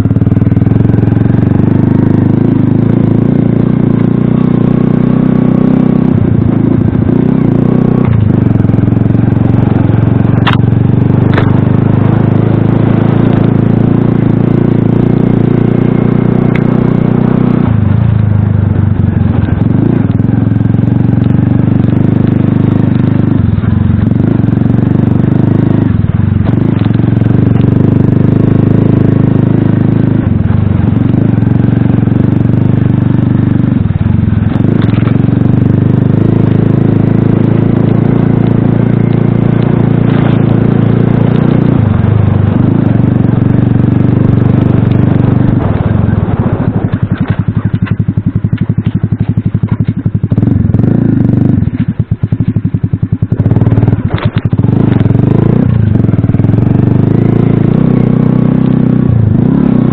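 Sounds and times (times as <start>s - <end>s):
moped engine running hard: 0.0s - 59.9s
sharp clacks: 10.4s - 10.7s, 46.6s - 50.2s, 51.6s - 55.1s.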